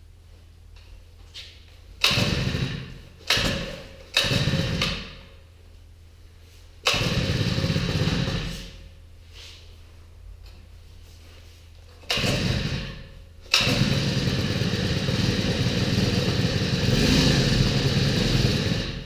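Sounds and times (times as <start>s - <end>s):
recoil starter pulls: 2.0s - 5.3s, 6.8s - 8.8s, 12.0s - 19.0s.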